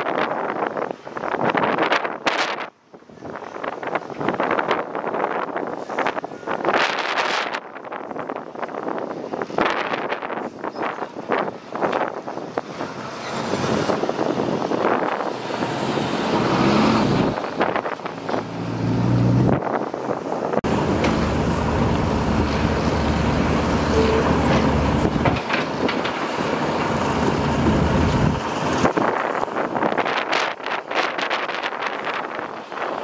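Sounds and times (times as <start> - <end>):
heavy diesel machine engine: 10.4 - 30.9.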